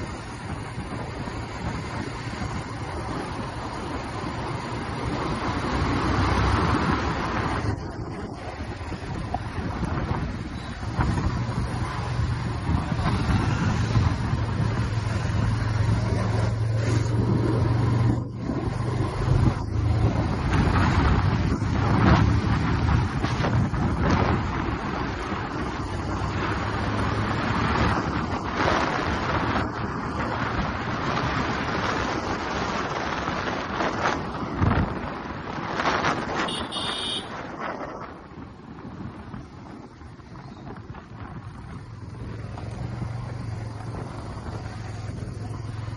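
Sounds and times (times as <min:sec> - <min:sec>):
wind and road noise: 0:00.0 - 0:45.9
vehicle horn: 0:36.4 - 0:37.5.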